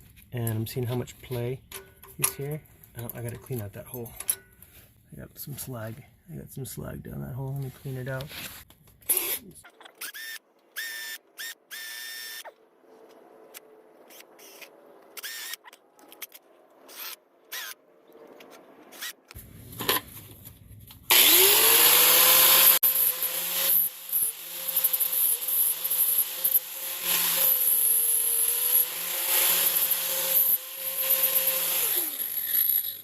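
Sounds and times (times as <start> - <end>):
power drill whirring: 9.1 - 12.6, 13.5 - 17.8, 21.1 - 33.0
power tool spinning up: 10.0 - 12.5, 13.5 - 15.7, 21.1 - 33.0.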